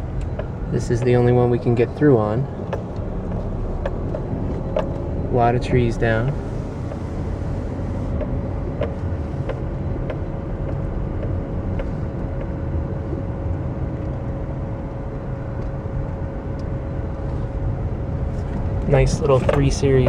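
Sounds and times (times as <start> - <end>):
engine and road noise: 0.0 - 20.0
thin steady hum: 0.0 - 20.0.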